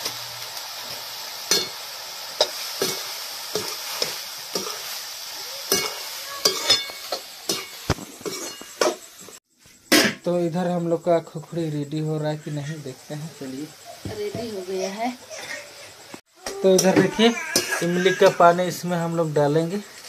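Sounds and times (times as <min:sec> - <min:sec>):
mushrooms sizzling in oil: 0:00.0 - 0:20.0
spatula scraping a pan: 0:05.7 - 0:10.2.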